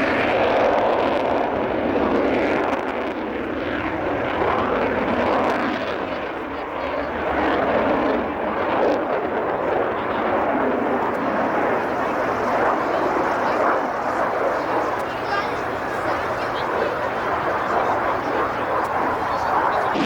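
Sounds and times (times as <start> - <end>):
aircraft engine rushing overhead: 0.0 - 20.0.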